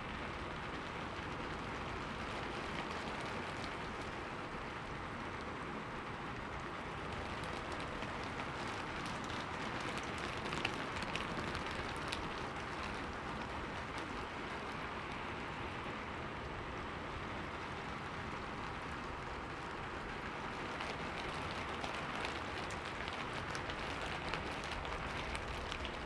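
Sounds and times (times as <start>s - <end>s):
rain pattering on window glass: 0.0s - 26.0s
sharp raindrop taps: 6.4s - 15.3s, 18.4s - 26.0s.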